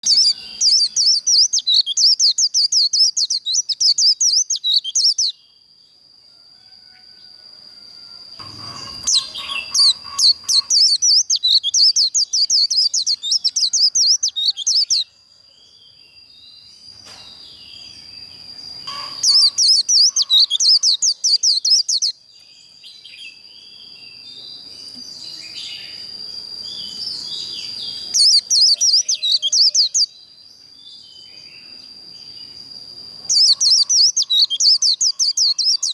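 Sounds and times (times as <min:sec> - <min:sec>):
bird chirps: 0:00.0 - 0:05.6, 0:08.4 - 0:35.9
bird high twittering song: 0:00.0 - 0:05.7, 0:08.4 - 0:35.9
thin steady high tone: 0:05.3 - 0:16.4, 0:17.8 - 0:22.2.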